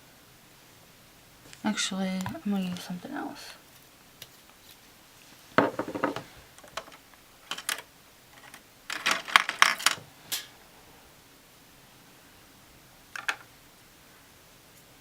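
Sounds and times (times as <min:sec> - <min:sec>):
small items clattering on tabletop: 0:05.6 - 0:10.0, 0:13.2 - 0:13.5.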